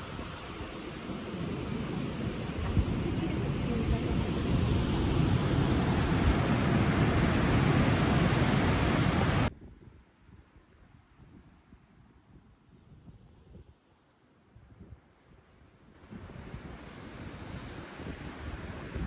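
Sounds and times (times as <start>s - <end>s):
ocean surf crashing: 0.0s - 9.5s
wind buffeting microphone: 0.0s - 13.7s, 16.0s - 19.0s.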